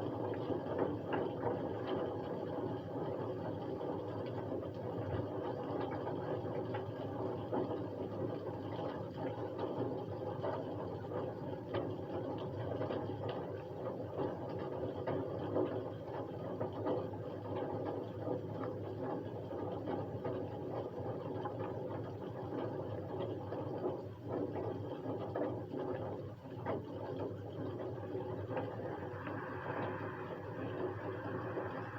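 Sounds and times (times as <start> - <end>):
faint steady hum: 0.0 - 31.9
rain drops ticking: 0.0 - 31.9
dense rain hiss: 28.0 - 31.9.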